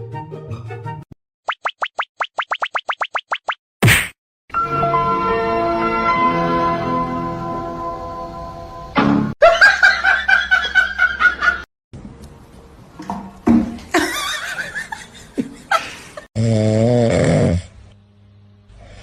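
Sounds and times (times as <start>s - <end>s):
person laughing: 13.9s - 16.3s.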